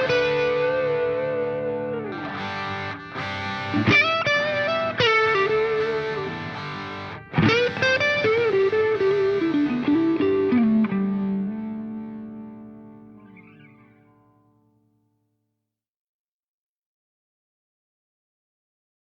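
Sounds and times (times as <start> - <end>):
distorted electric guitar: 0.0 - 14.4.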